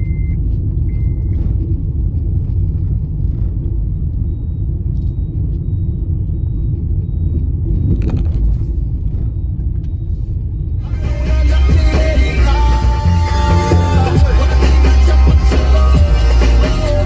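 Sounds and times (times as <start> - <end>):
car road and engine rumble: 0.0 - 17.0
music: 10.8 - 17.0.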